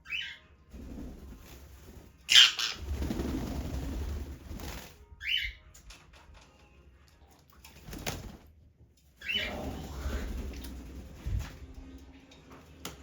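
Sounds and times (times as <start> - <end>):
parrot flapping wings: 0.8 - 5.0, 7.6 - 8.6, 9.5 - 11.9.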